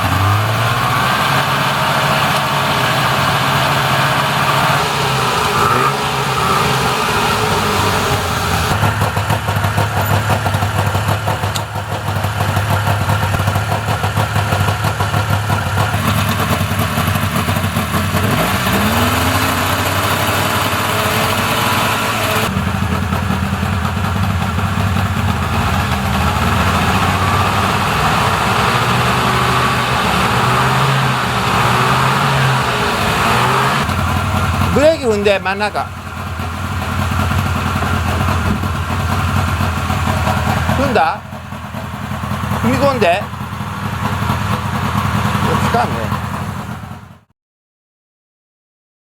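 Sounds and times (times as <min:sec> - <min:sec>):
rising tone: 0:00.4 - 0:08.8
two-stroke engine idling: 0:01.7 - 0:47.3.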